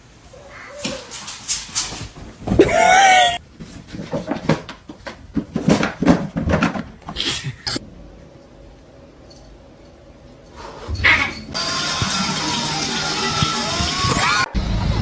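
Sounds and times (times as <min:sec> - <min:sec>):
pet animal crying: 0:00.3 - 0:01.1, 0:02.6 - 0:03.4.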